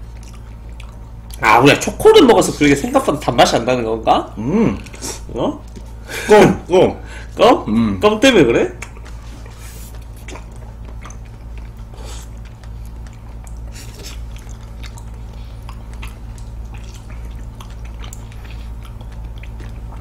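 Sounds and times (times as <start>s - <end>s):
wet squishing chewing: 0.0s - 3.5s, 4.7s - 6.0s, 8.7s - 20.0s
low steady hum: 0.0s - 20.0s.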